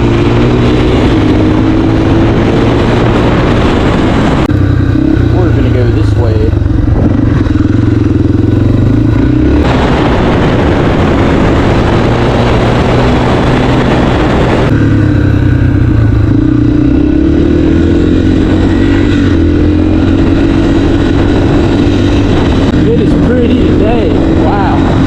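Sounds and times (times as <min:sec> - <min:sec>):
dirt bike engine running: 0:00.0 - 0:25.0
loud rushing noise: 0:06.8 - 0:25.0.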